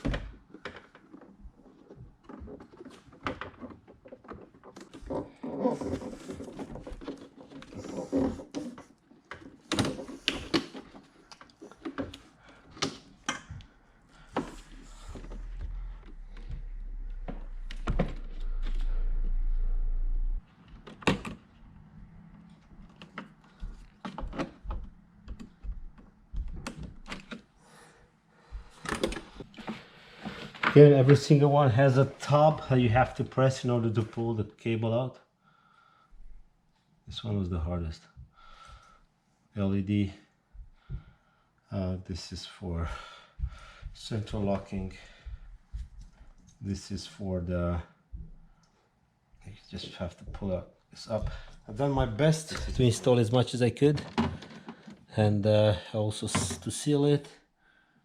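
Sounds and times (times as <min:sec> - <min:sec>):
steady low hum: 0:13.6 - 0:20.4.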